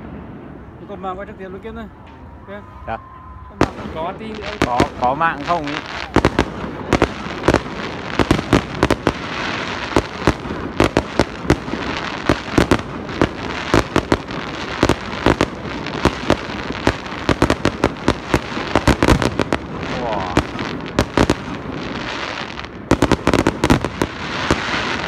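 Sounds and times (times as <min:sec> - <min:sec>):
fireworks bangs: 0:00.0 - 0:25.0
fireworks crackling hiss: 0:03.6 - 0:25.0.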